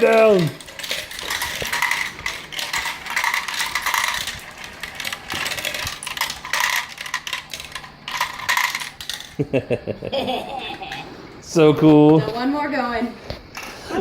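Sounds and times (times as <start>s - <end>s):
marbles clattering down a track: 0.0s - 9.4s.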